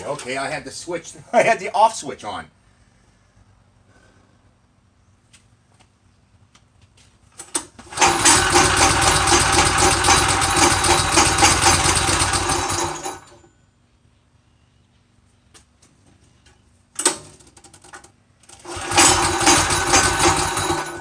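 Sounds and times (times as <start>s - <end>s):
go-kart engine pull-started: 7.8s - 13.4s, 18.5s - 21.0s.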